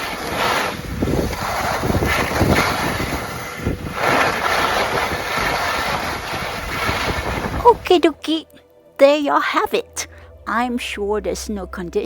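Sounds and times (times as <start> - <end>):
strong wind buffeting microphone: 0.0 - 8.0.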